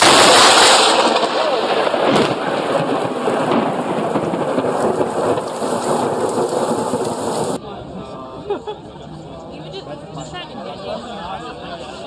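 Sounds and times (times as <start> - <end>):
heavy rain pouring: 0.0 - 7.6
thunder rumbling: 0.0 - 7.6.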